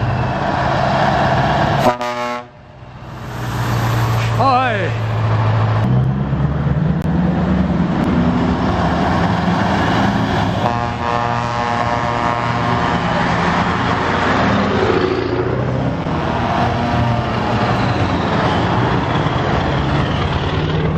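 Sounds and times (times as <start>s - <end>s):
trucks driving past: 0.0s - 20.9s.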